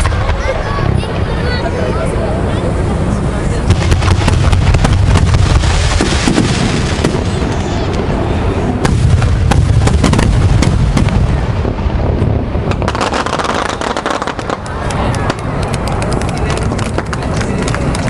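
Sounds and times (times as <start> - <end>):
fireworks booming: 0.0 - 18.0
fireworks cracking and crackling: 0.0 - 18.0.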